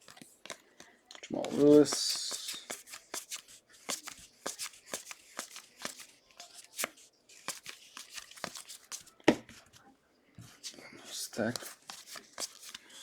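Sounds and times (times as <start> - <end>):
trading cards being flipped: 1.4 - 9.1, 11.5 - 12.8.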